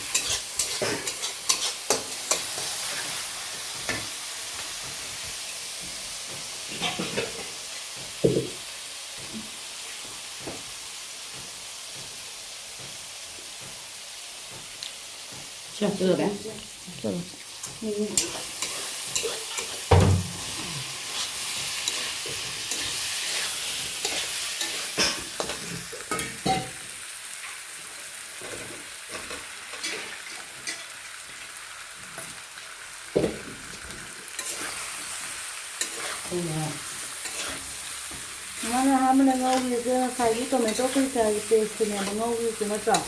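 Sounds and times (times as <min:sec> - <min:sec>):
spatula scraping pan: 0:00.0 - 0:04.1, 0:17.7 - 0:26.7, 0:28.4 - 0:30.9, 0:34.3 - 0:43.0
chicken sizzling in hot oil: 0:00.0 - 0:43.0.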